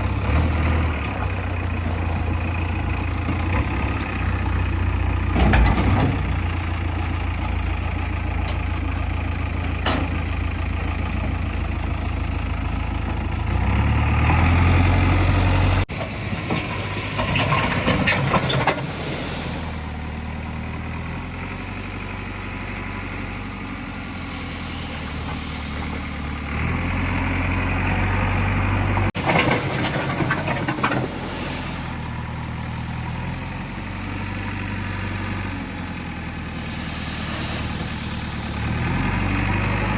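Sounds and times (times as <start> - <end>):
diesel engines running: 0.0 - 39.9
short clattering: 29.2 - 32.2.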